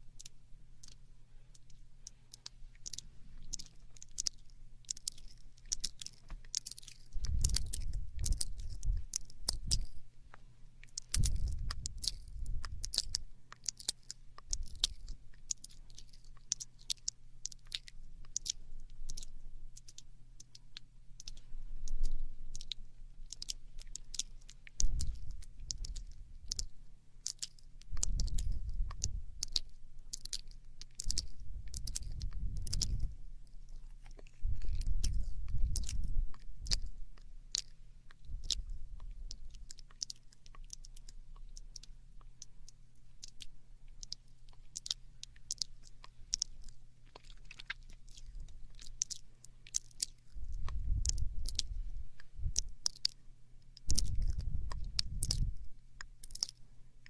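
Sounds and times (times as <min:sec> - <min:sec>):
wet mouth clicks and smacks: 0:00.2 - 0:56.6
low rumble: 0:50.4 - 0:52.9.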